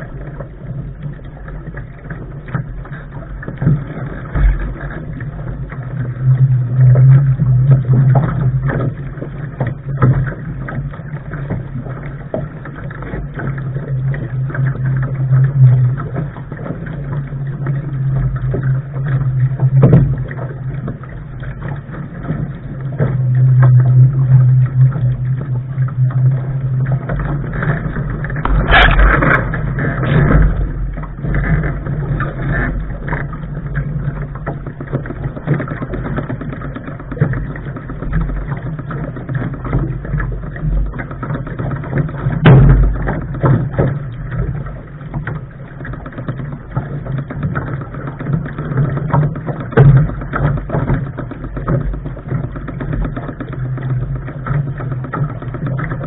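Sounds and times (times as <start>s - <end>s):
water rushing along hull: 0.0s - 56.0s
wind rumbling on microphone: 0.0s - 56.0s
water splash: 19.8s - 33.3s.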